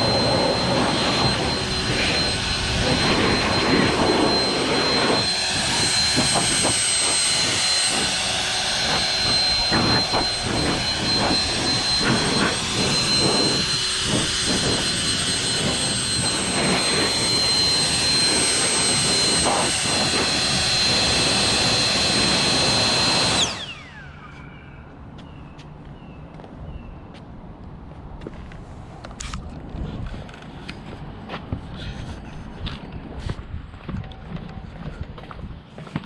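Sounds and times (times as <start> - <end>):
leaf blower whining: 0.0 - 24.8.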